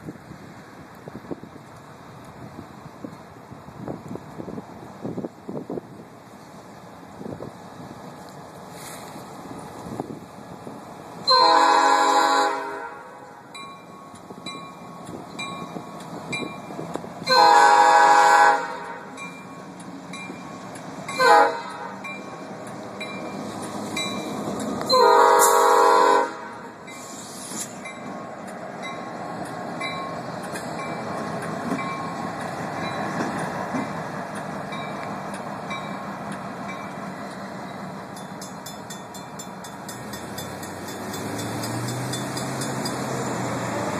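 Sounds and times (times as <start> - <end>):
locomotive engine rumble: 0.0 - 43.9
locomotive air horn blasts: 11.2 - 13.5, 17.2 - 19.2, 21.1 - 22.0, 24.8 - 26.8.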